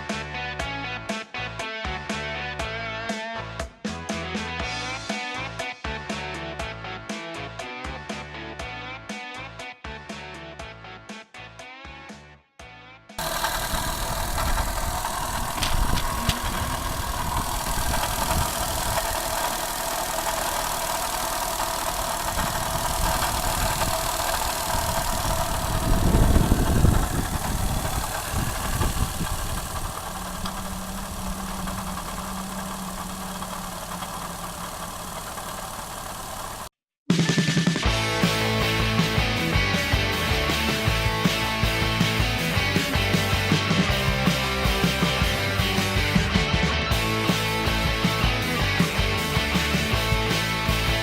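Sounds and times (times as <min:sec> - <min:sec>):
car engine idling with rattle: 0:13.2 - 0:36.7.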